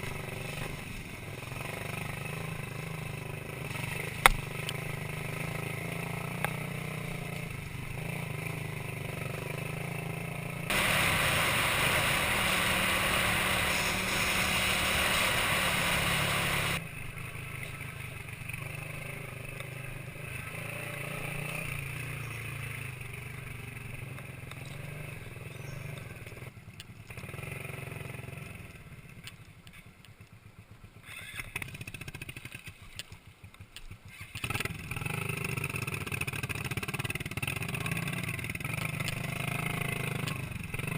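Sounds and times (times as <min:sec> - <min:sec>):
motorcycle engine running: 0:00.0 - 0:40.9
loud rushing noise: 0:10.7 - 0:16.8.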